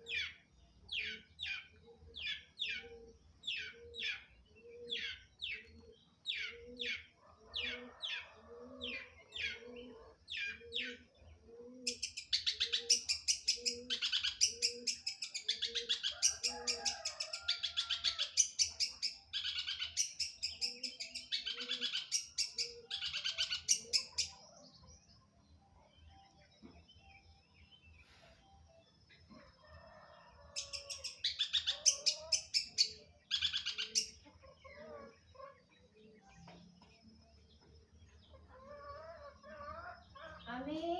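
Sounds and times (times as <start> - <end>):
bird chattering song: 9.0 - 24.5, 30.6 - 35.9.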